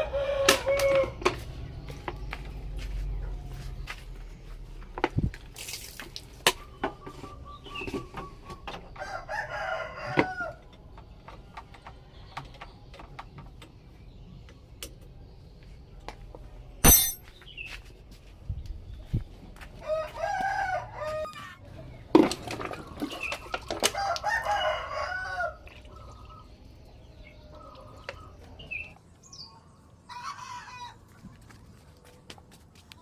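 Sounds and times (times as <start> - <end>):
rooster crowing: 0.0 - 1.2, 9.0 - 10.6, 19.8 - 21.6, 23.9 - 25.7.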